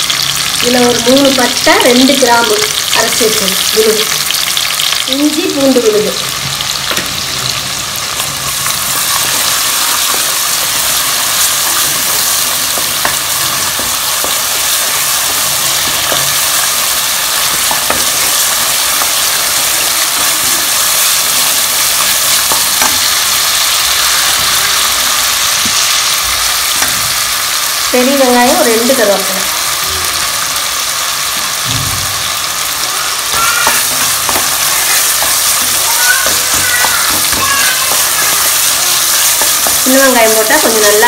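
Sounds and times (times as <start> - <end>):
paste sizzling in hot oil: 0.0 - 41.0
wooden spatula stirring: 8.5 - 23.4, 33.4 - 40.4.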